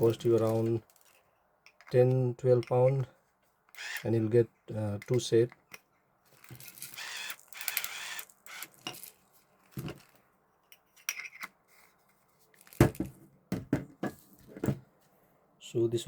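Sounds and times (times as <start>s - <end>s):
rustling of small objects: 0.0s - 2.0s, 6.2s - 10.3s, 11.0s - 13.2s.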